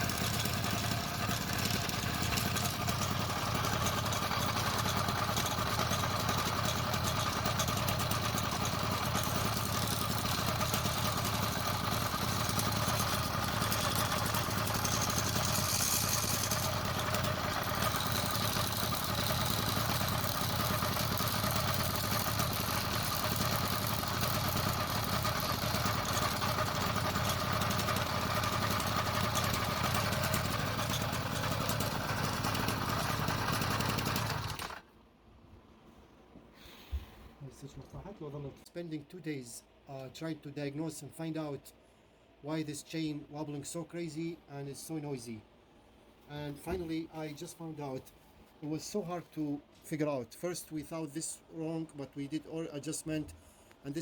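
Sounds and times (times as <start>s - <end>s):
noisy drive chain rattling: 0.0s - 34.8s
small engine running: 0.0s - 34.9s.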